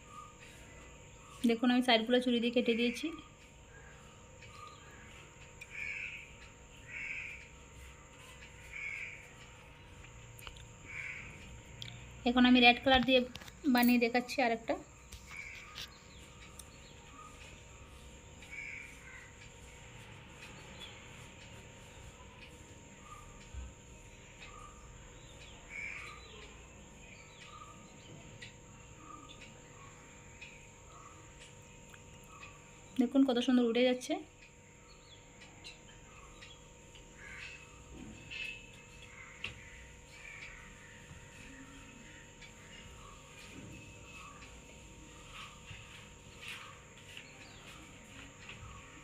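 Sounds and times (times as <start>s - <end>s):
faint bird calls: 2.7s - 12.2s, 15.2s - 33.1s, 34.7s - 49.0s.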